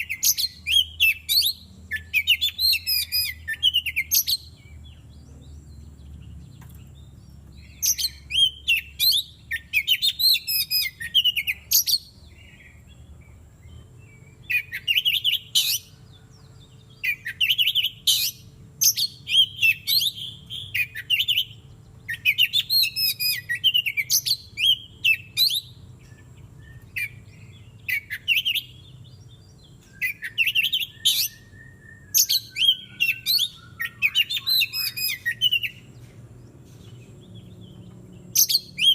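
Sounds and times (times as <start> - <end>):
bird singing varied song: 0.0 - 38.9.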